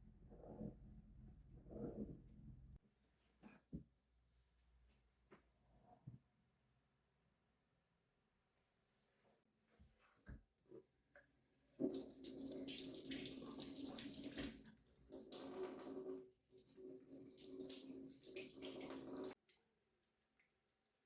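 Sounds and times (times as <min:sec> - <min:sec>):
tap water running into sink: 0:11.8 - 0:19.4.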